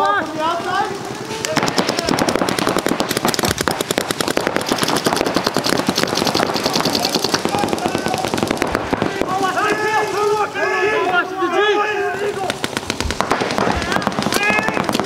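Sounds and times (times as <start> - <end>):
paintball markers firing: 1.3 - 10.4, 12.2 - 15.0.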